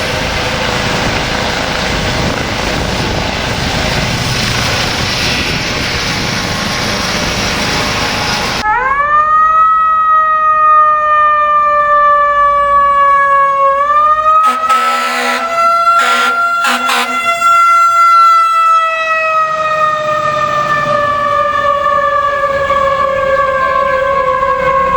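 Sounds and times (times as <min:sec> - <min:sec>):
fire truck siren wailing: 0:00.0 - 0:24.9
short loud horn blasts: 0:14.4 - 0:17.5.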